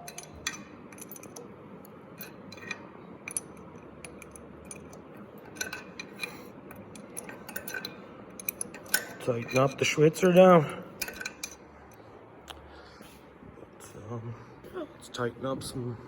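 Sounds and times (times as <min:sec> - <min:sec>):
metal tools clinking: 0:00.0 - 0:11.8.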